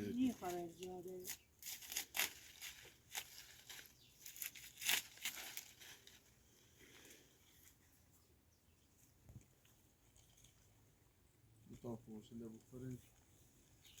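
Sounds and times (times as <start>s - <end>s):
crackling and rustling: 0.2s - 7.9s.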